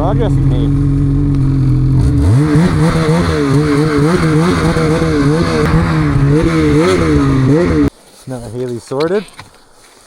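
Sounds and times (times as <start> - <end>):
snowmobile engine revving: 0.0 - 7.9.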